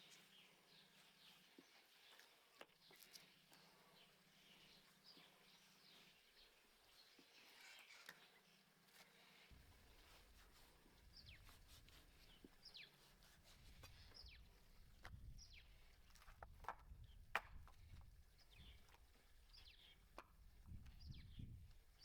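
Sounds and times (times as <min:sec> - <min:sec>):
small bird chirping: 0:09.8 - 0:15.9, 0:17.9 - 0:22.0.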